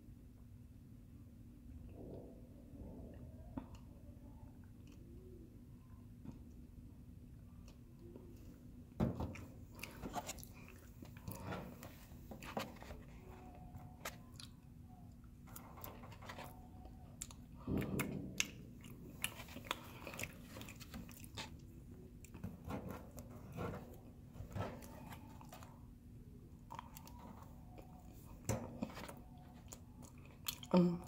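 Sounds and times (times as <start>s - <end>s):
chewing and mouth sounds: 14.0s - 16.4s, 17.2s - 22.4s, 26.6s - 31.0s.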